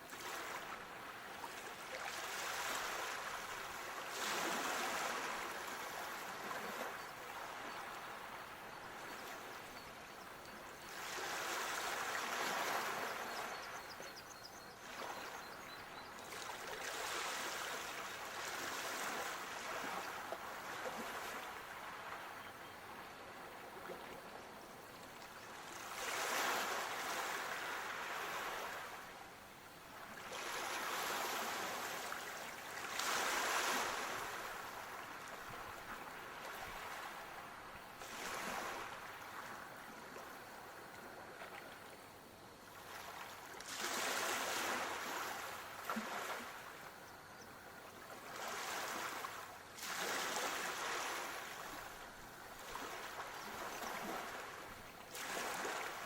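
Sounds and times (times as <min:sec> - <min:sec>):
sea waves washing onto shore: 0:25.7 - 0:29.1, 0:30.2 - 0:39.6, 0:48.3 - 0:52.0.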